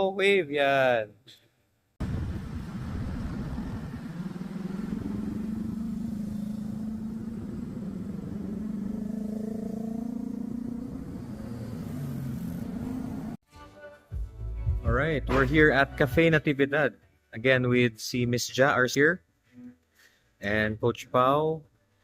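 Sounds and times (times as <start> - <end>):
road noise rumble: 2.0 - 13.4
motorcycle engine running: 2.2 - 13.4.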